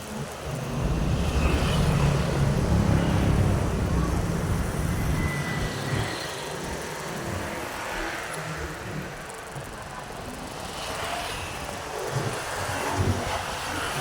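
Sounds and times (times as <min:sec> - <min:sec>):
motorbike engine and road noise: 0:00.1 - 0:09.4
wind buffeting microphone: 0:00.4 - 0:06.1.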